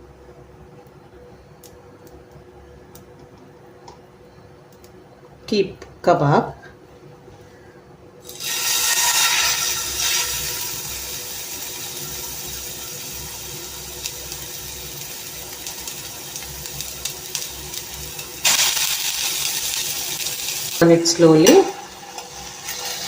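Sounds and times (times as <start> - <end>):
kebabs sizzling in hot oil: 8.2 - 23.0.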